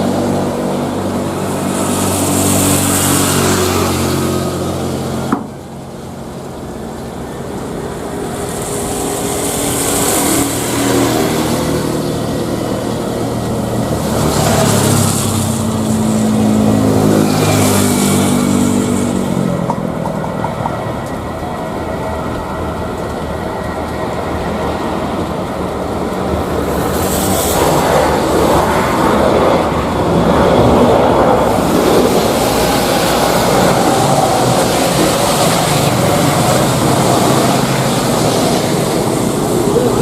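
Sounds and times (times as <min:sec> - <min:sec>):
jet engines at high power: 0:00.0 - 0:40.0
hiss: 0:07.9 - 0:12.4.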